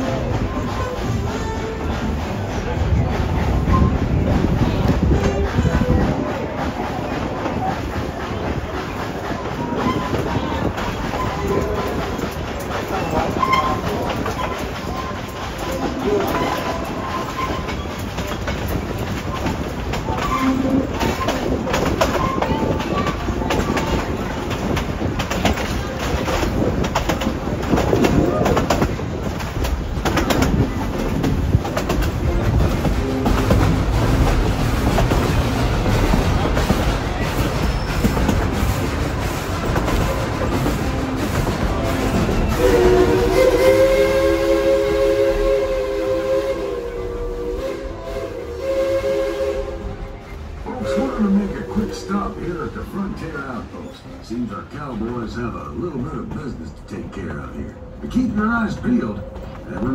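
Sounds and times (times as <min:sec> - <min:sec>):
train wheels clicking over rail joints: 0:00.0 - 0:47.6
train rumbling: 0:00.0 - 0:59.9.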